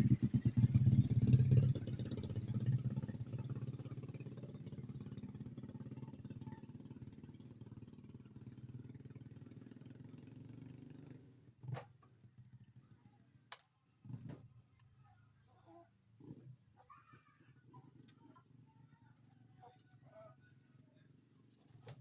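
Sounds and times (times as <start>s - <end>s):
engine hum: 0.0s - 12.0s.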